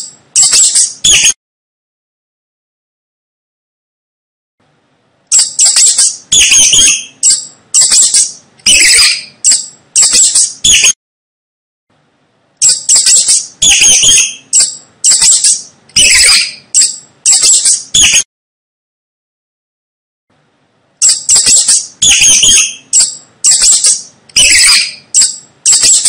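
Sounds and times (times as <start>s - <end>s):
mouse squeaking: 0.0s - 1.4s, 5.3s - 11.0s, 12.6s - 18.3s, 21.0s - 26.0s.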